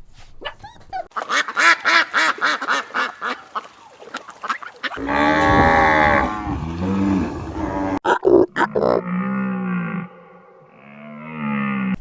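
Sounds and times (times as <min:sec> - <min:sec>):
ducks quacking: 0:01.1 - 0:06.5
cow mooing: 0:05.0 - 0:08.0, 0:08.6 - 0:12.0.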